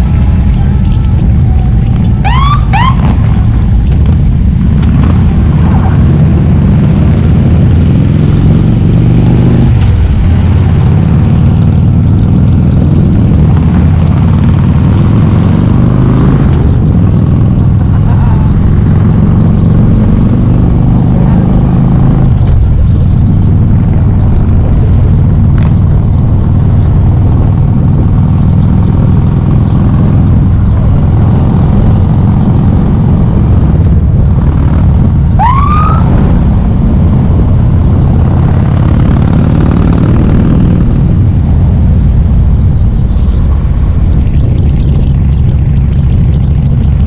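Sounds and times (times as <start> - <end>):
motorcycle engine running: 0.0 - 47.0.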